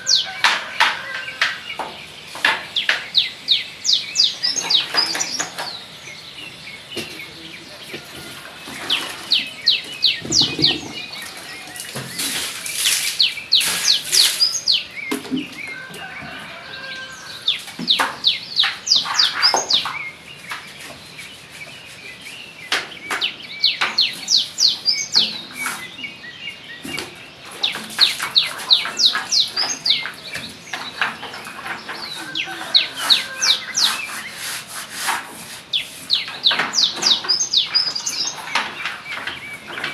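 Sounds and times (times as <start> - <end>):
birds chirping: 0.0 - 39.9
brush scrubbing a floor: 8.7 - 15.0, 15.8 - 23.2, 26.9 - 39.9.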